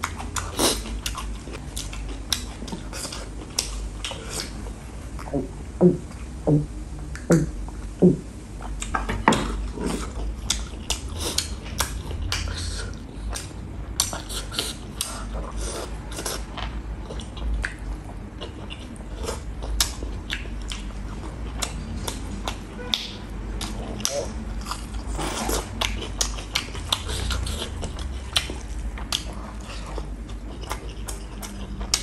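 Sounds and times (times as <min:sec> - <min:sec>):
man chewing food: 0:00.0 - 0:32.0
short pitched mouth sounds: 0:05.2 - 0:08.3.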